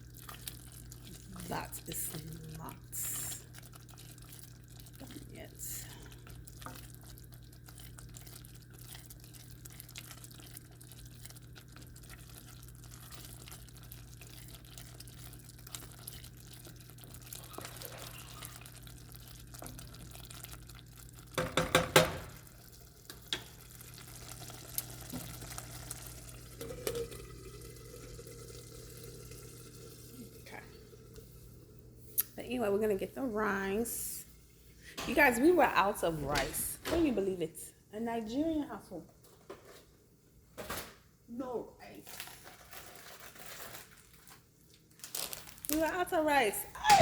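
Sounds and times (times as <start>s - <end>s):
soup sizzling in a pot: 0.0s - 32.4s.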